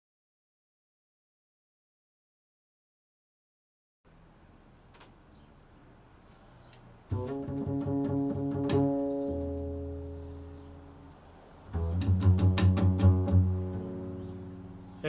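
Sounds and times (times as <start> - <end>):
plucked string instrument: 7.1 - 15.0.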